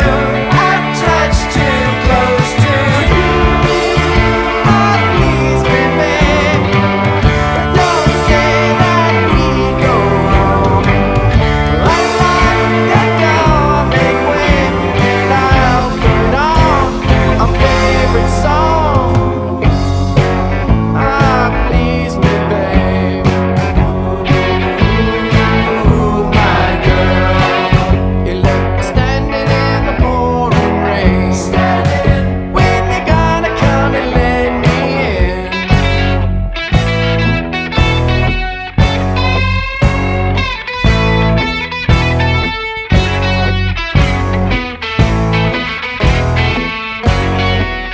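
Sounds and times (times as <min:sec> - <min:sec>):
person singing: 0:00.0 - 0:36.3
bass guitar: 0:00.0 - 0:47.9
drums playing: 0:00.0 - 0:47.9
electric guitars: 0:00.0 - 0:47.9.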